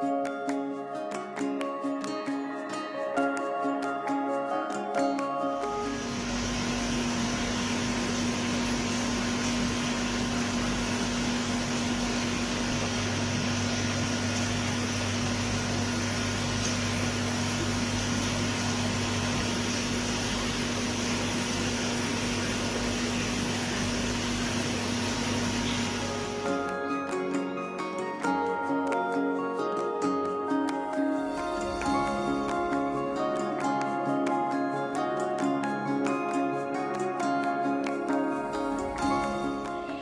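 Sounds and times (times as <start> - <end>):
mechanical hum: 5.6 - 28.8, 31.0 - 35.2, 38.1 - 40.0.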